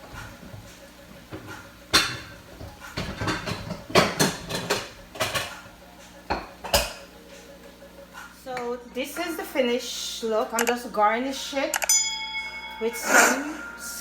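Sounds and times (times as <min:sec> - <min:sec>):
utensils clattering against dishes: 0:00.0 - 0:07.5.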